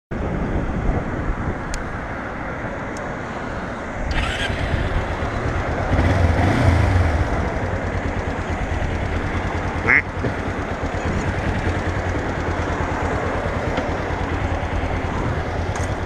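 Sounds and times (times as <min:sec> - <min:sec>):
motorcycle engine running: 0:04.1 - 0:16.0.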